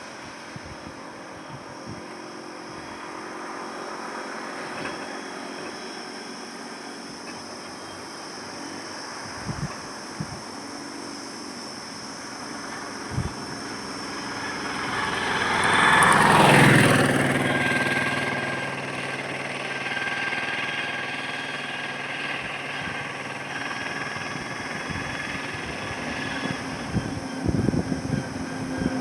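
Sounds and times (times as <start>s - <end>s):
hum of highway traffic: 0.0s - 29.0s
vehicle passing close by: 12.5s - 29.0s.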